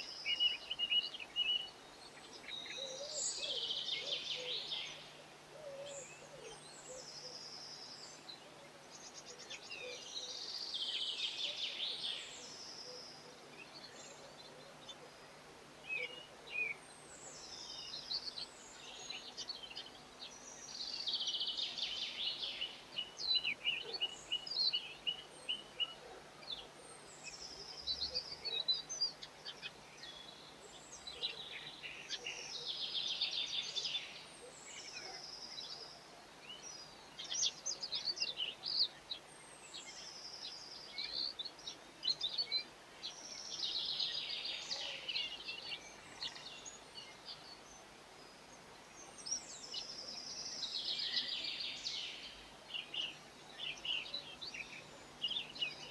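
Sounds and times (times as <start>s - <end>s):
birds singing and chirping: 15.9s - 47.8s, 49.0s - 55.9s.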